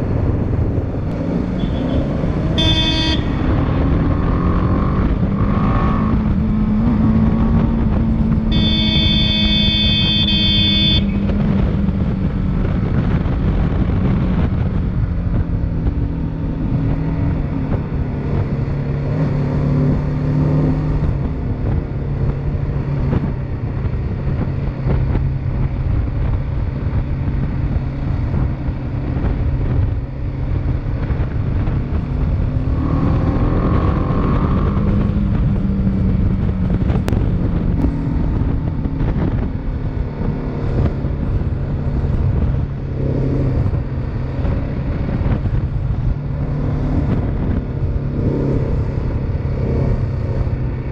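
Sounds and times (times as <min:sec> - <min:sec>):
motorcycle engine running: 0:00.0 - 0:50.9
wind and road noise: 0:00.0 - 0:50.9
loud horn blast: 0:01.5 - 0:03.8, 0:08.5 - 0:11.2.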